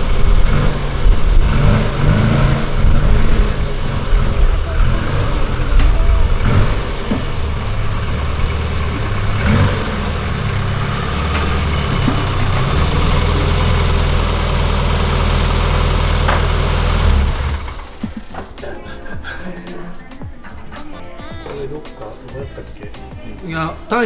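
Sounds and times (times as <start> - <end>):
car engine running at low revs: 0.0 - 18.5.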